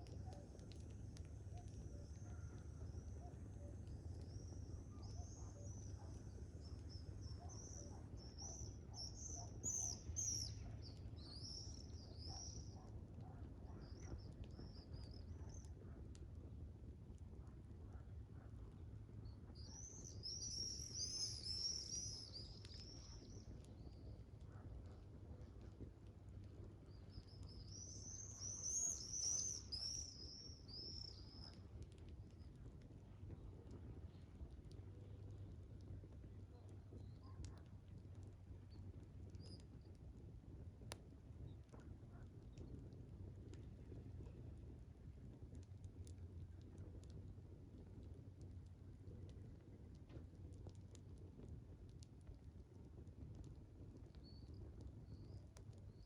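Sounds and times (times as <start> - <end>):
faint low rumble: 0.0 - 56.0
small birds chirping: 1.7 - 12.8, 26.8 - 32.5
songbird singing: 4.2 - 12.8, 26.8 - 31.6.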